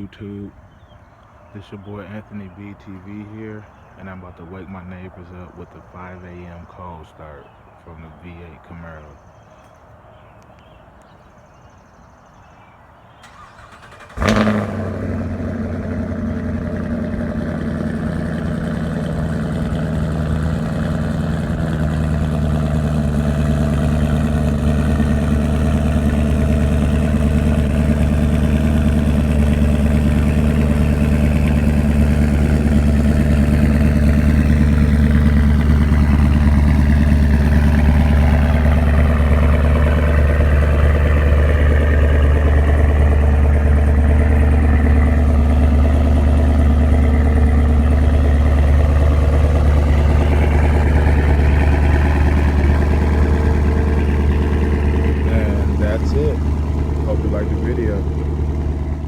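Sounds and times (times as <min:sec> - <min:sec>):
car engine starting and idling: 0:13.1 - 0:59.0.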